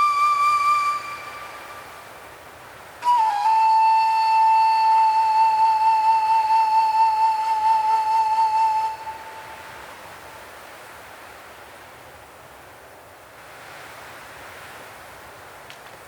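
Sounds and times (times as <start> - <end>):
flute long note with vibrato: 0.0 - 2.1, 3.0 - 9.8
soft hiss: 0.0 - 16.0.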